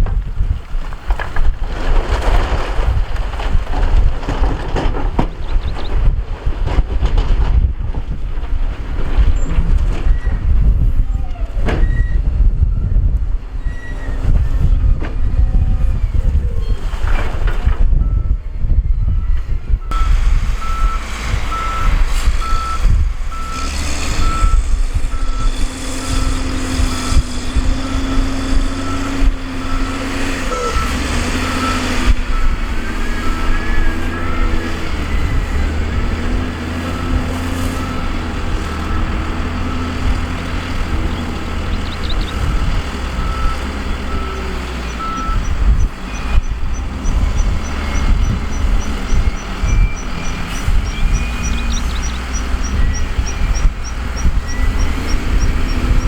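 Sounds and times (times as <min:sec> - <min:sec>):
heavy diesel machinery running: 0:00.0 - 0:56.0
backup alarm beeping: 0:41.8 - 0:56.0.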